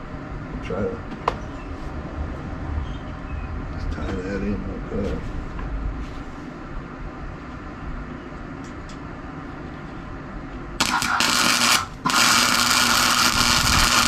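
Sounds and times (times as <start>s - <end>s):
welder arc sizzling: 10.8s - 14.0s.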